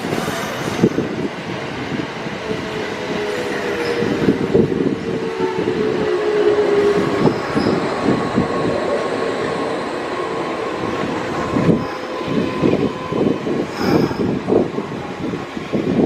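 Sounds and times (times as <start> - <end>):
train wheel-on-rail noise: 0.0 - 16.0.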